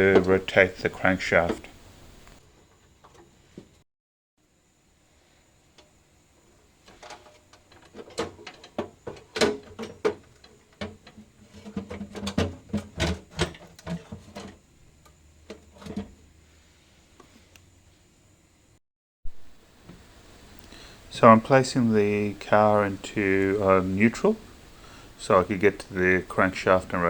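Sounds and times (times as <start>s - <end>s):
tools and parts clattering: 2.6s - 3.8s, 6.8s - 16.2s.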